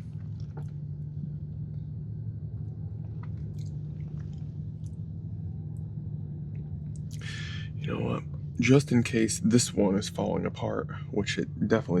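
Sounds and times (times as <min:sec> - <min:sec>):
steady low hum: 0:00.0 - 0:12.0
person chewing: 0:03.2 - 0:05.0
wet mouth clicks: 0:03.2 - 0:05.0, 0:07.0 - 0:07.4.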